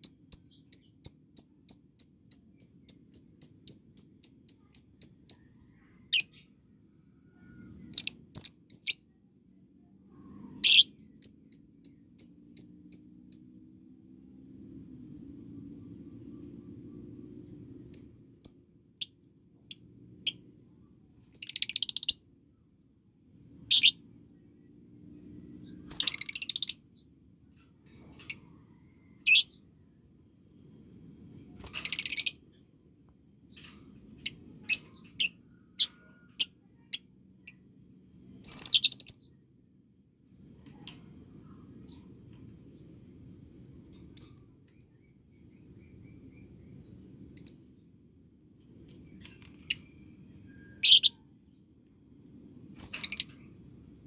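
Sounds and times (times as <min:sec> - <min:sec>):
bird chirps: 0:00.0 - 0:09.2, 0:10.1 - 0:13.6, 0:17.8 - 0:22.3, 0:23.2 - 0:24.5, 0:25.1 - 0:29.6, 0:31.6 - 0:32.6, 0:33.5 - 0:39.4, 0:40.7 - 0:43.0, 0:43.9 - 0:47.9, 0:48.9 - 0:51.6, 0:52.5 - 0:54.0
faint low hum: 0:00.0 - 0:54.0
bird chattering trills: 0:50.6 - 0:51.2.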